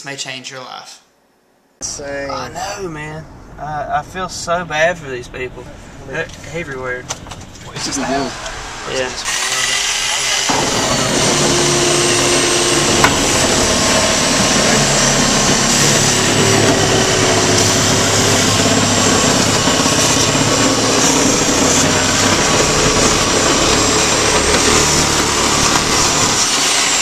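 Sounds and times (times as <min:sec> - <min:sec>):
power saw cutting wood: 0:07.8 - 0:27.0.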